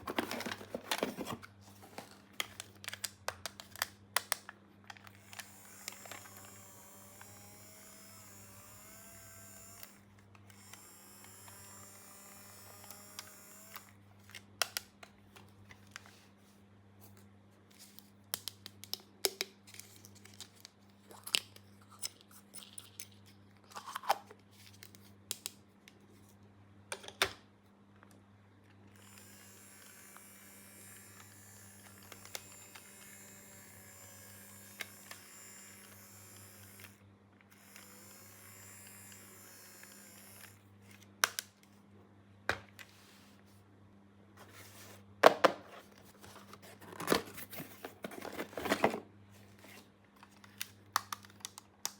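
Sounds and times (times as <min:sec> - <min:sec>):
plastic toy parts clicking: 0:50.2 - 0:51.9.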